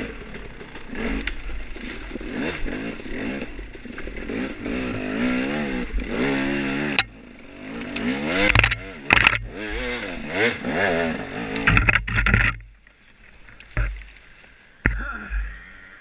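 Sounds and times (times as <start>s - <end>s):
dirt bike engine revving: 0.0s - 12.7s.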